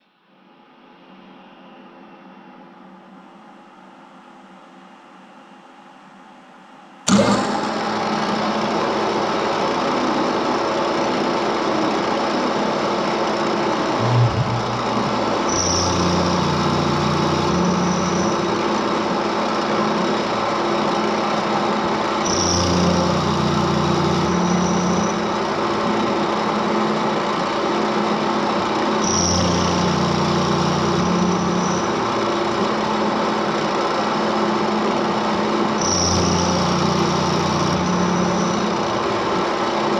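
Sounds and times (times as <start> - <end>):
machine high whine: 12.8 - 39.9.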